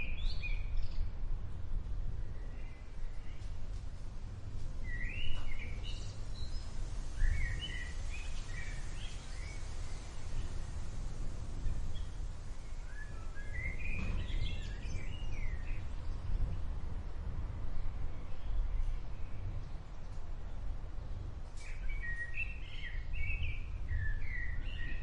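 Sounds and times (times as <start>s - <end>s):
low outdoor rumble: 0.0s - 25.0s
songbird chirping: 4.8s - 16.7s, 17.7s - 25.0s.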